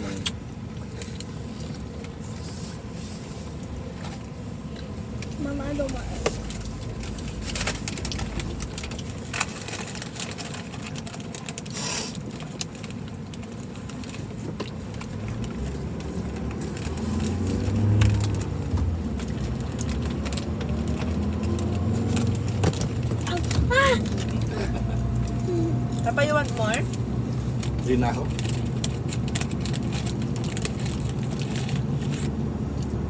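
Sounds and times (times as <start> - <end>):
car cabin low rumble: 0.0 - 33.0.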